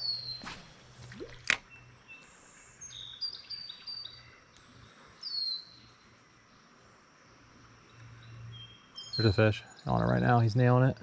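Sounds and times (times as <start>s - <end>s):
songbirds whistling: 0.0s - 4.4s, 5.2s - 6.0s, 7.9s - 10.0s.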